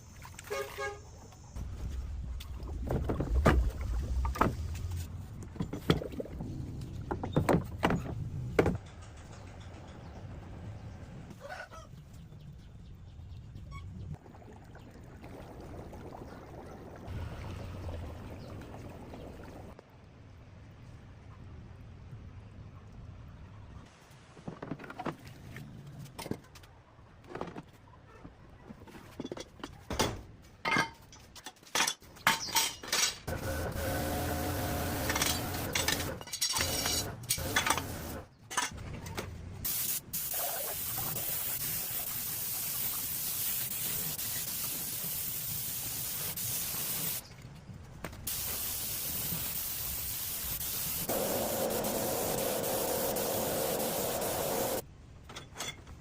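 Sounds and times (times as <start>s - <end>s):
paint spraying hiss: 39.7s - 47.2s, 48.3s - 54.8s.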